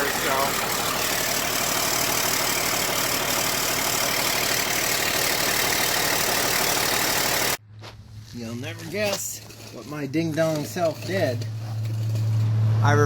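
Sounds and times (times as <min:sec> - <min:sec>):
truck diesel engine idling: 0:00.0 - 0:07.6.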